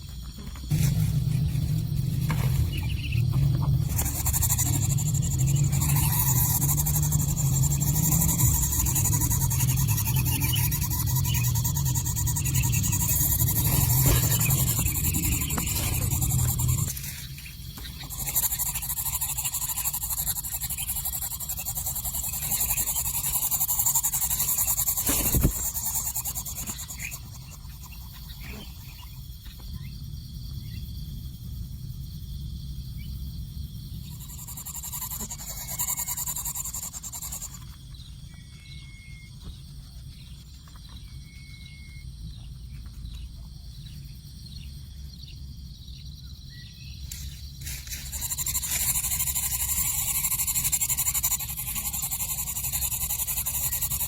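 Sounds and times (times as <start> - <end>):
low rumble: 0.6 - 18.1
faint bird chirps: 0.7 - 31.0, 33.9 - 54.0.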